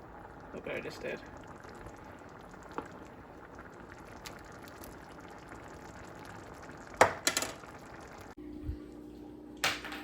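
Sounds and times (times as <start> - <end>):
sauce simmering in a pot: 0.0 - 8.4.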